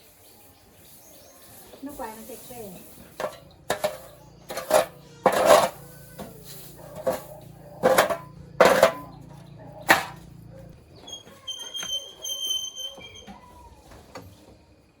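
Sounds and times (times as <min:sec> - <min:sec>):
knocks and scrapes on mill: 0:02.8 - 0:10.5.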